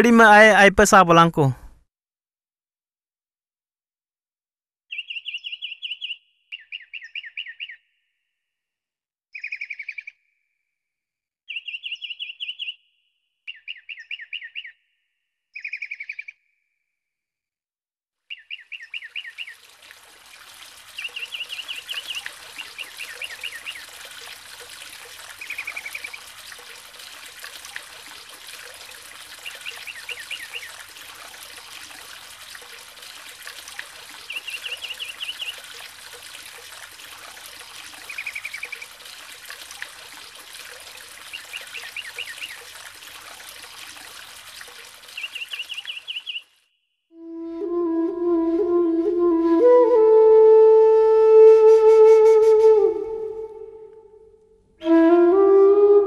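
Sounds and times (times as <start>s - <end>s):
running river water: 18.3s - 46.6s, 47.2s - 56.0s
bird calling rapid trill: 45.1s - 46.5s.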